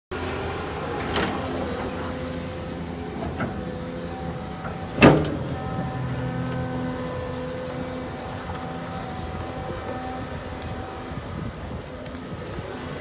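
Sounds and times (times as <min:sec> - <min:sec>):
excavator diesel engine running: 0:00.1 - 0:13.0
light metal clanks: 0:00.5 - 0:10.8
loud metallic knock: 0:03.1 - 0:07.4.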